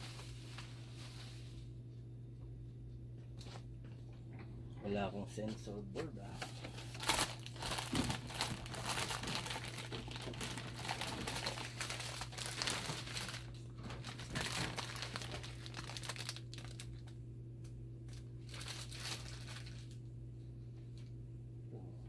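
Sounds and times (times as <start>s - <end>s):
crumpling and rustling: 0.0s - 1.6s, 6.2s - 17.2s, 18.0s - 20.1s
steady low hum: 0.0s - 22.0s.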